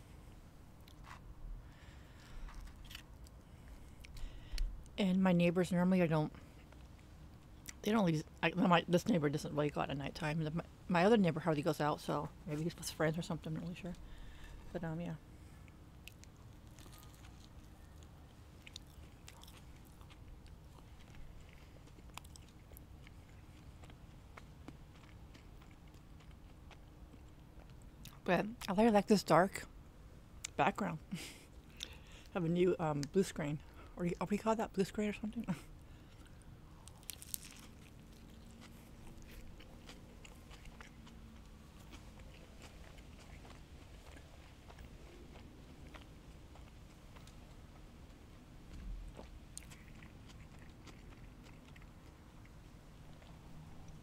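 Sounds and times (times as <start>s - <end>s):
steady low hum: 0.0s - 54.0s
chewing and biting food: 1.9s - 5.0s, 15.4s - 28.2s, 35.4s - 54.0s.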